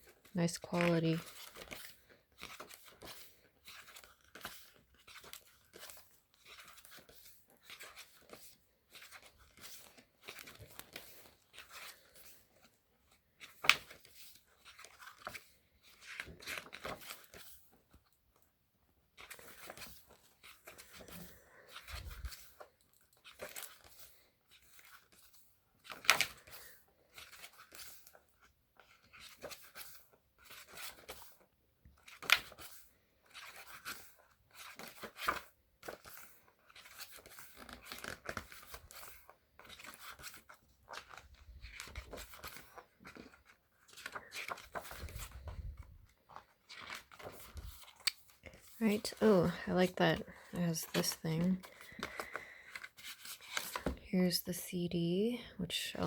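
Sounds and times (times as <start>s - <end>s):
book pages turning: 0.0s - 54.3s
page snaps: 46.8s - 48.3s.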